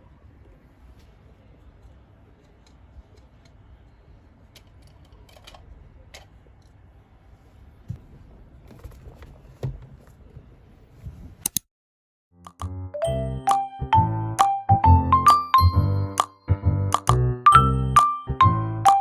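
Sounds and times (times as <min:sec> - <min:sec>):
small objects clicking and tapping: 0:16.9 - 0:17.2.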